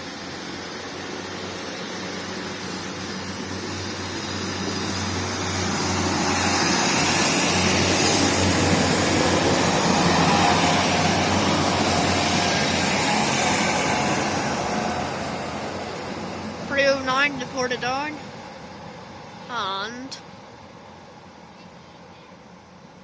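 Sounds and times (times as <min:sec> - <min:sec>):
diesel train engine hum: 0:00.0 - 0:23.0
train wheel noise: 0:00.0 - 0:23.0.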